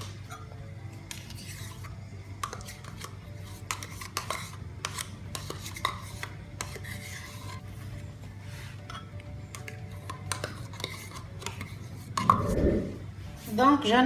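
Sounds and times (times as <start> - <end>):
spoon scraping and tapping bowl: 2.4 - 7.6, 8.8 - 12.4.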